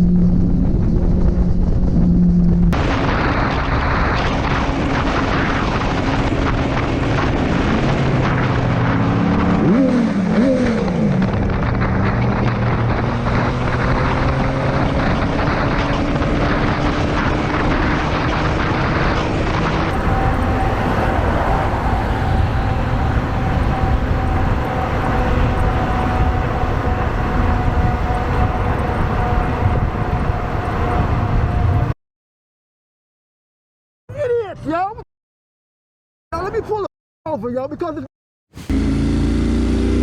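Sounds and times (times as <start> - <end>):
wind noise: 0.0 - 32.0
motorcycle engine running: 5.8 - 31.8, 38.6 - 40.0.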